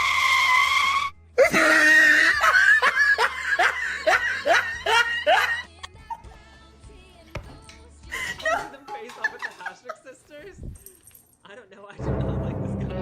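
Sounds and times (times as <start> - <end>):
person laughing: 1.4 - 6.3.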